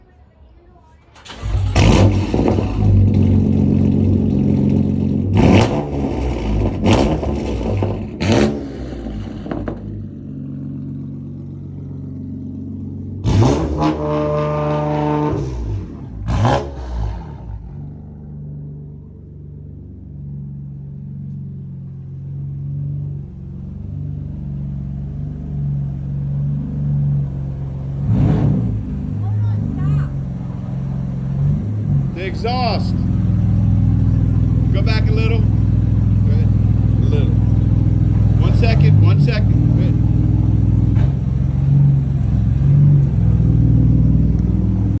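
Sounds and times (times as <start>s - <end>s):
car engine idling: 0.0s - 13.8s, 15.5s - 45.0s
car engine revving: 1.1s - 45.0s.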